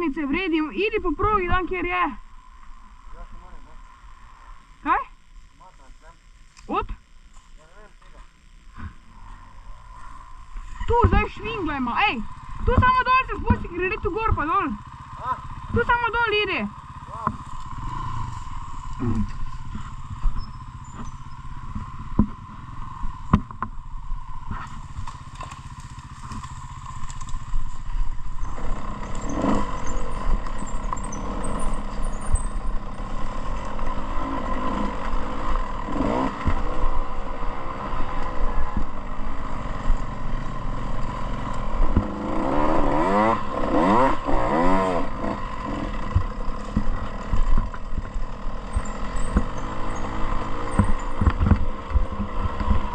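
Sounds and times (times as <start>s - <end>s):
dirt bike engine revving: 7.9s - 52.9s.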